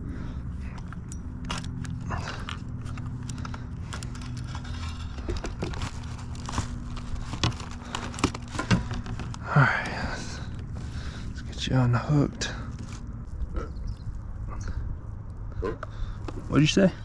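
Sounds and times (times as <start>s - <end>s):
steady low hum: 0.0s - 17.0s
fishing gear clicks and knocks: 0.4s - 11.4s.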